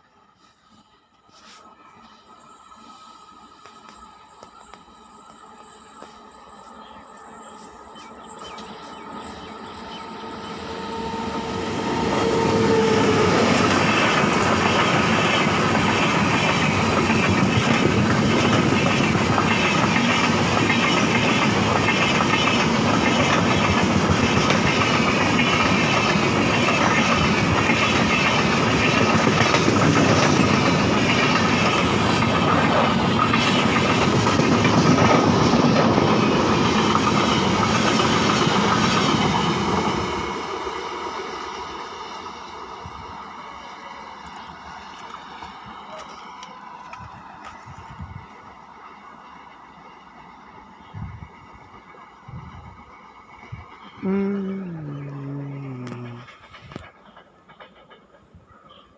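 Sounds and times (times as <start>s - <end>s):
train coaches rushing past: 0.0s - 58.9s
wheels clacking over rail joints: 11.5s - 42.6s.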